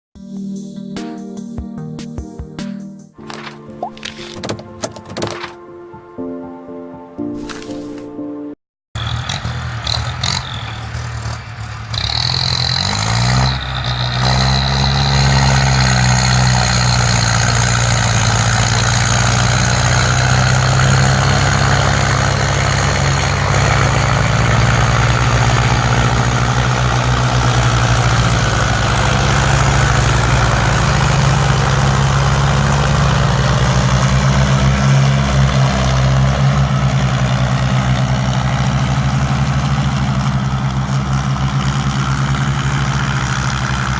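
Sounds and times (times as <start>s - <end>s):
tractor diesel engine revving: 9.0s - 43.9s.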